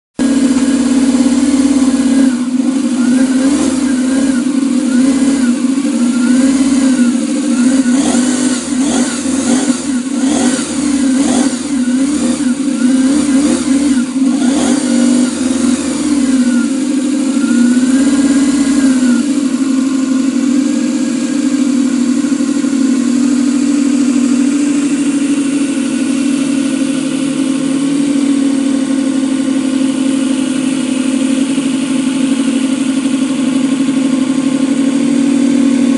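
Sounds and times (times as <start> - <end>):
model engine revving: 0.2 - 20.5
engine crackles: 0.2 - 35.9.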